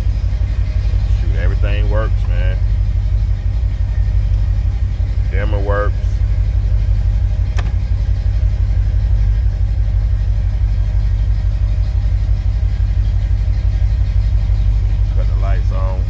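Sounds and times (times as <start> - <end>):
car engine rumbling: 0.0 - 16.0
sharp click: 7.5 - 7.8.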